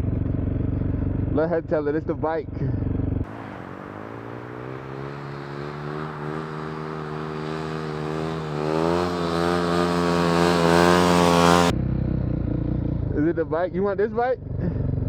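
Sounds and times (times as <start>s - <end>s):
dirt bike engine revving: 2.7s - 13.3s.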